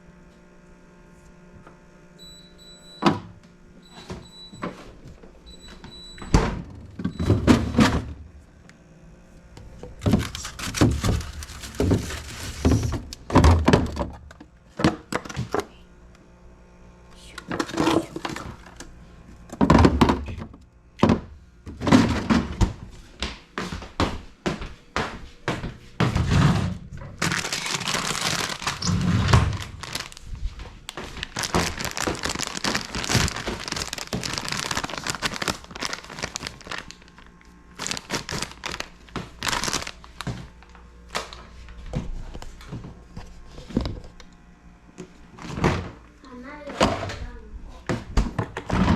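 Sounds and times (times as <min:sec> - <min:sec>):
containers knocking and clunking: 0:09.8 - 0:15.7, 0:19.5 - 0:22.8
plastic crinkling: 0:10.0 - 0:13.2, 0:27.2 - 0:40.8.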